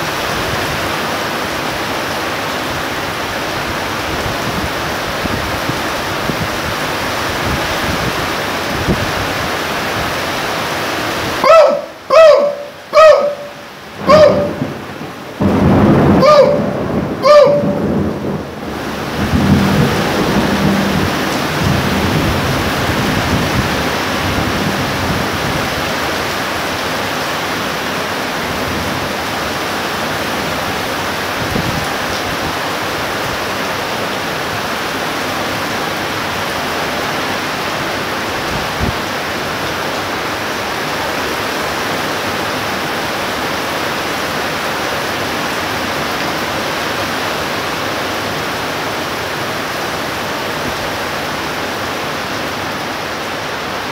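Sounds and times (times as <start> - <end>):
heavy rain pouring: 0.0 - 53.9
thunder rumbling: 13.9 - 25.9.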